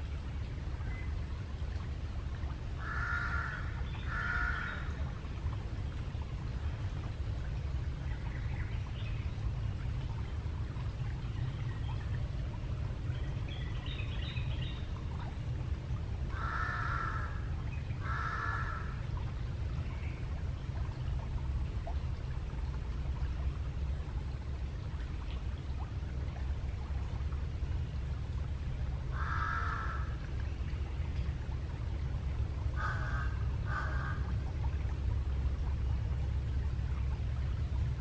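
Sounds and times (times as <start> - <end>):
low rumbling noise: 0.0 - 38.0
crow cawing: 2.8 - 4.8, 16.4 - 17.4, 18.0 - 18.9, 29.2 - 30.1, 32.8 - 34.2.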